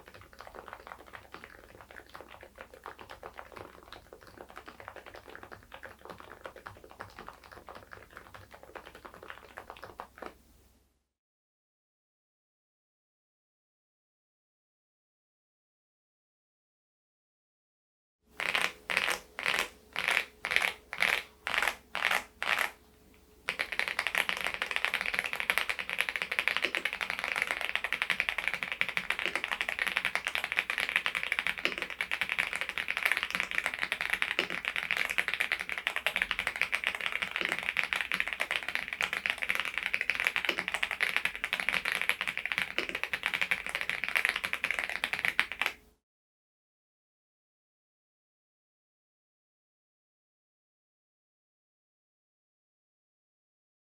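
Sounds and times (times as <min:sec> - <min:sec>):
mechanical keyboard typing: 0:18.4 - 0:22.7, 0:23.5 - 0:45.8.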